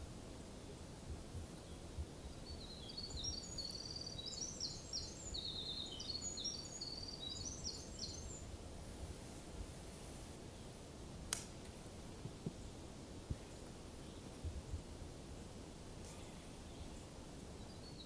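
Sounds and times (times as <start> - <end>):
songbird singing trills: 1.5 - 8.5, 16.0 - 18.0.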